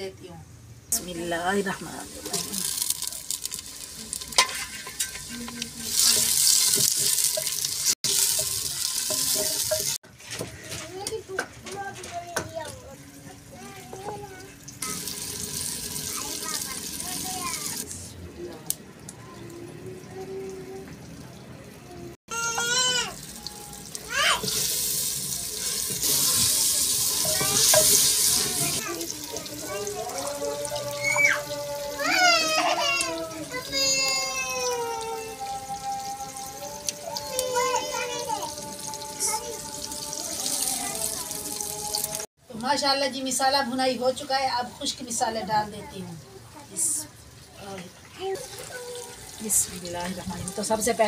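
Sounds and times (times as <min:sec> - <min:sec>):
food sizzling in hot oil: 0:01.0 - 0:10.0, 0:13.6 - 0:18.0, 0:22.3 - 0:51.0
wooden spoon stirring: 0:02.2 - 0:10.7.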